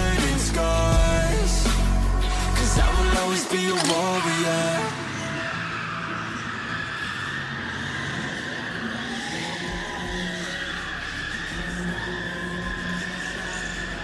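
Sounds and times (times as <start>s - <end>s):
deep low rumble: 0.0s - 3.2s
tyres squealing: 3.5s - 14.0s.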